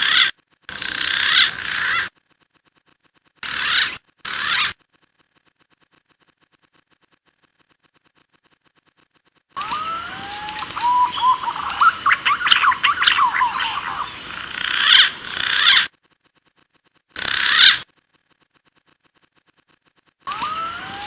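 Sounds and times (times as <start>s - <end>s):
pigeon whistled calls: 9.7s - 14.2s.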